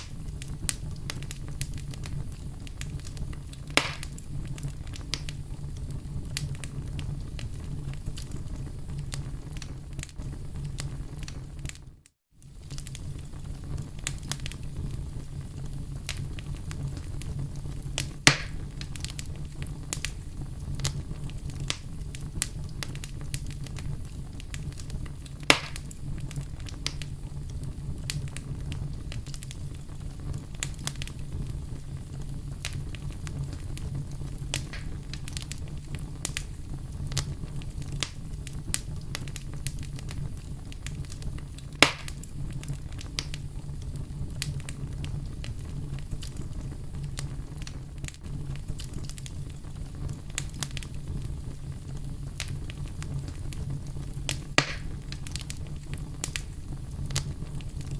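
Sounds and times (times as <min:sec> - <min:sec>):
loud sharp pops: 0:00.0 - 0:00.8, 0:03.7 - 0:04.2, 0:18.2 - 0:18.7, 0:25.4 - 0:26.0, 0:34.5 - 0:35.2, 0:41.8 - 0:42.3, 0:54.3 - 0:55.4
wood fire crackling: 0:00.0 - 0:57.9.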